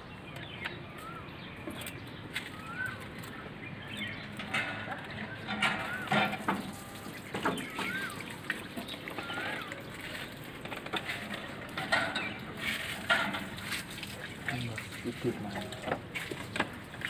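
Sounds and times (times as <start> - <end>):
birds whistling: 0.0 - 10.5, 11.2 - 13.0.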